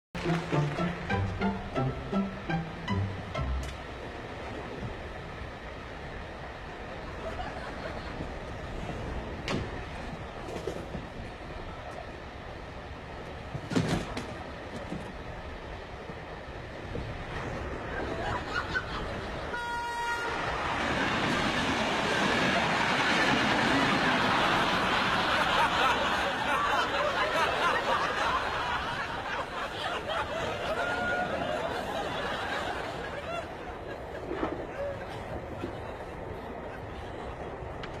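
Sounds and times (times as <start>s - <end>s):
train rumbling: 0.2s - 38.0s
audience laughing: 7.1s - 8.6s, 17.8s - 19.5s, 20.9s - 37.8s.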